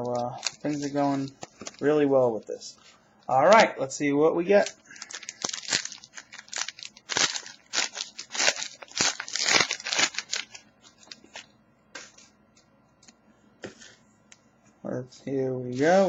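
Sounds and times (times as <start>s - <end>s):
card pack wrapper tearing: 0.1s - 1.9s, 4.6s - 11.4s.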